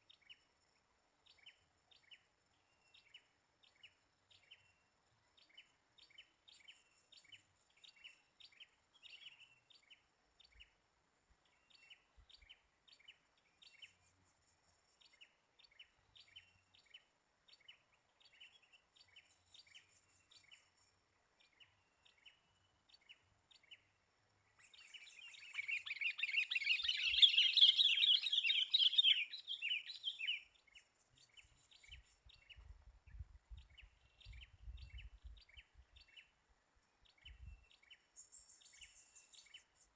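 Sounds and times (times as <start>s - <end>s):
birds chirping: 11.4s - 39.9s
dense chattering bird calls: 24.5s - 32.5s.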